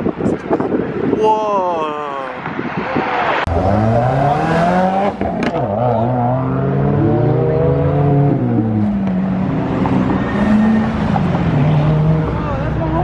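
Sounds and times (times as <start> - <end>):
car engine accelerating: 3.4 - 13.0.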